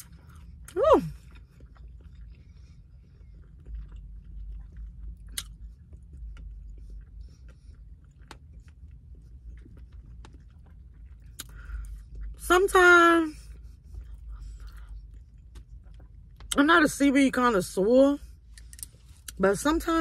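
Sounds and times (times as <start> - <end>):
person chewing with mouth clicks: 0.0 - 12.4.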